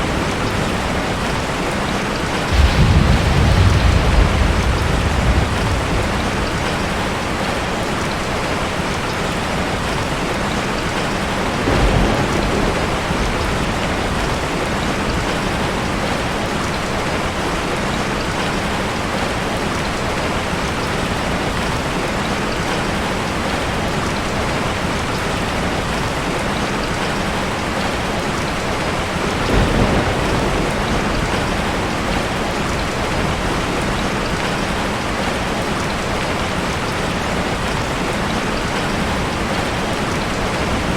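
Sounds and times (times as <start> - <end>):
heavy rain falling: 0.0 - 40.9
low thunder rumbles: 2.3 - 8.6, 11.4 - 17.4, 29.2 - 34.4.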